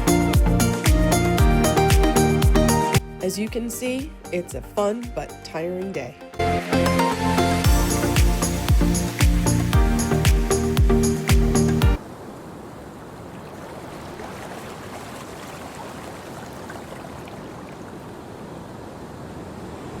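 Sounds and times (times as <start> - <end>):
background music with regular beat: 0.0 - 5.6, 6.2 - 12.0
waves on a beach: 7.6 - 20.0.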